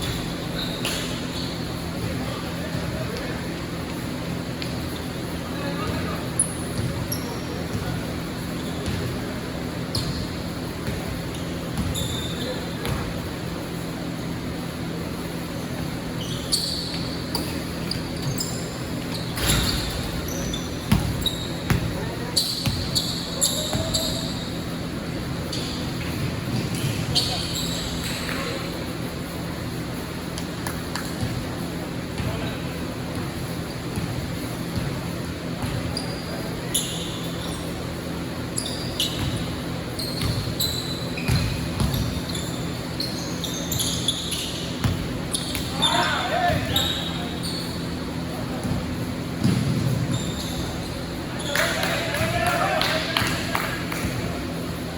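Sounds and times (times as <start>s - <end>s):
sneakers squeaking on floor: 0.0s - 54.9s
basketball bouncing on court: 5.8s - 14.1s, 15.8s - 28.5s, 30.3s - 36.1s, 39.0s - 42.7s, 43.4s - 52.4s.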